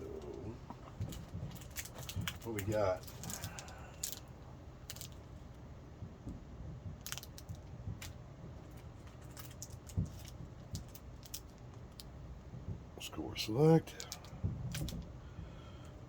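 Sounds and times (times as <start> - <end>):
low steady hum: 0.0 - 16.0
card wrappers crinkling: 0.1 - 4.3.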